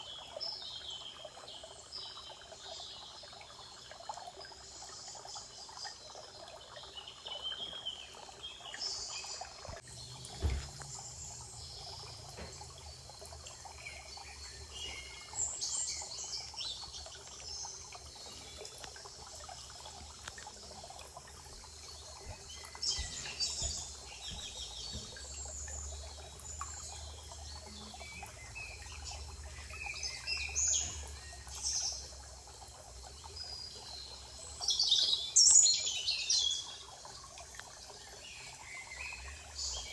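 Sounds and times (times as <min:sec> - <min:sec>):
songbirds singing: 0:00.0 - 0:39.9
water trickling: 0:00.0 - 0:39.9
brief thump: 0:10.3 - 0:10.8.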